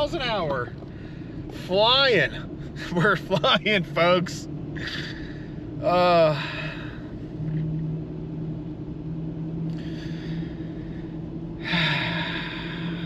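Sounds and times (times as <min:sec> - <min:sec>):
road noise: 0:00.0 - 0:13.0
truck engine drone: 0:00.0 - 0:13.0
breathy exhales: 0:09.7 - 0:13.0.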